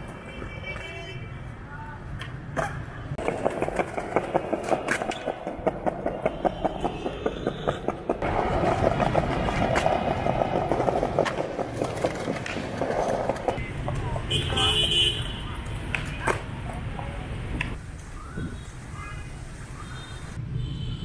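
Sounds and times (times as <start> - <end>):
skateboard clacks: 2.2 - 14.2
skateboard wheels rattling on paving: 3.2 - 14.4.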